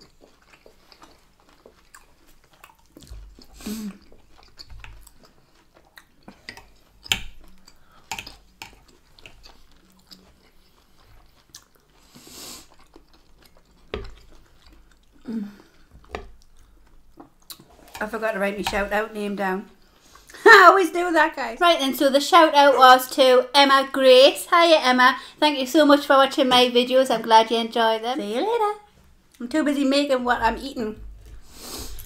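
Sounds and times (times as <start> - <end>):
chewing and crunching food: 0.0 - 19.1
breathy sounds: 15.2 - 16.0.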